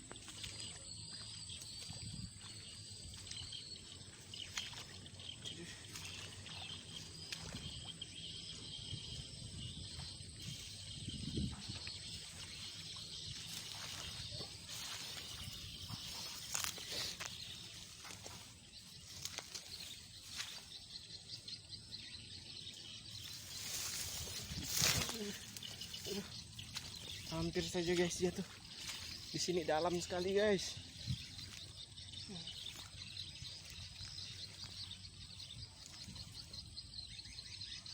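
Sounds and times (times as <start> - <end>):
high insect drone: 0.0 - 37.8
rustling through undergrowth: 12.1 - 21.1, 22.7 - 31.8.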